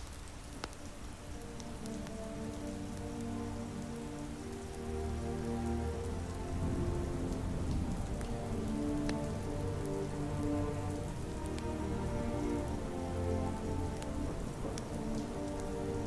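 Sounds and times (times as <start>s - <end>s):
faint sharp ticks: 0.0s - 6.4s, 7.7s - 11.8s
steady soft rain: 0.0s - 16.0s
ambient music pad: 0.3s - 16.0s.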